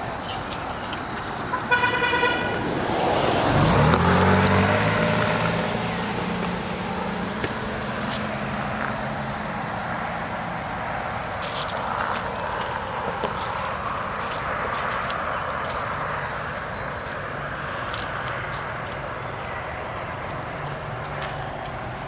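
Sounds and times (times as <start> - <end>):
vehicle engine passing close: 0.0 - 22.0
vehicle horn beep: 1.5 - 2.6.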